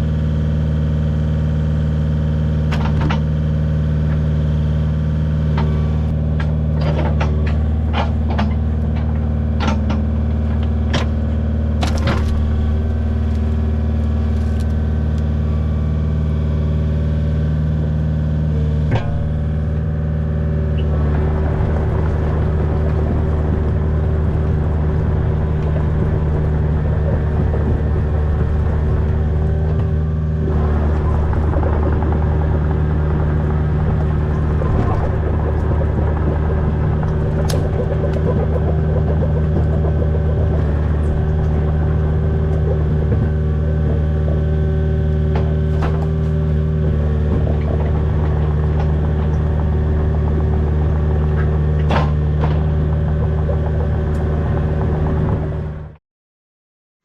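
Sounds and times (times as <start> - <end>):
excavator diesel engine running: 0.0 - 56.0
sharp knocks and clanks: 6.3 - 11.2, 20.8 - 55.7.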